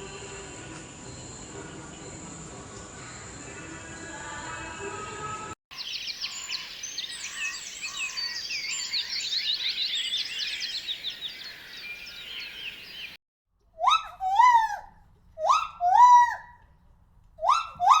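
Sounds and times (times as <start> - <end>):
small birds chirping: 5.7 - 13.2.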